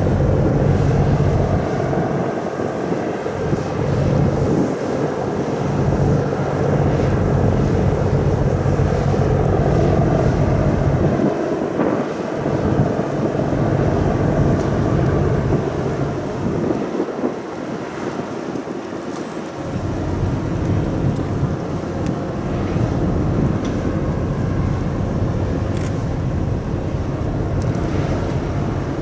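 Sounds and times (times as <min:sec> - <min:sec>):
wind buffeting microphone: 0:00.0 - 0:29.0
ferry engines droning: 0:17.3 - 0:29.0.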